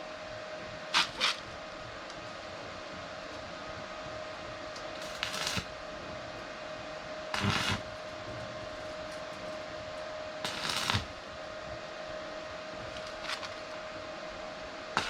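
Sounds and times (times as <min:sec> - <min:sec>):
steady machine hum: 0:00.0 - 0:15.0
electric arc welding crackle: 0:00.9 - 0:01.8, 0:04.9 - 0:05.8, 0:07.3 - 0:08.1, 0:10.4 - 0:11.2, 0:12.8 - 0:13.6.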